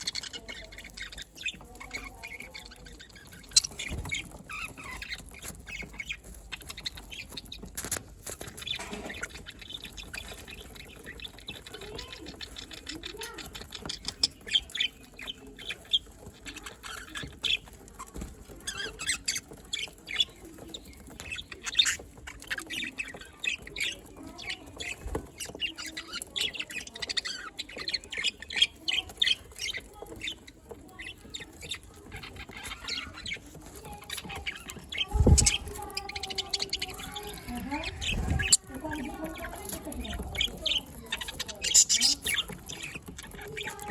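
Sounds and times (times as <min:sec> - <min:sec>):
budgerigars chattering: 0:00.0 - 0:43.9.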